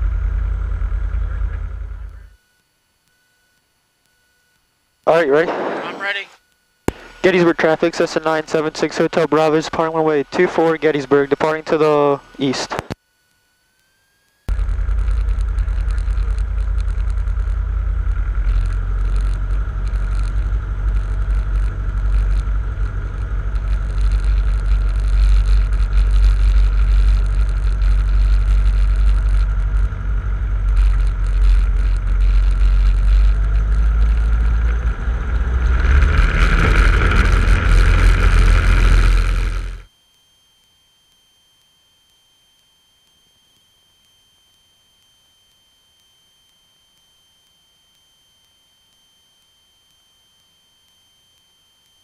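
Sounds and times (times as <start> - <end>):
airplane engine droning: 0.0 - 2.4, 5.1 - 13.0, 14.4 - 39.9.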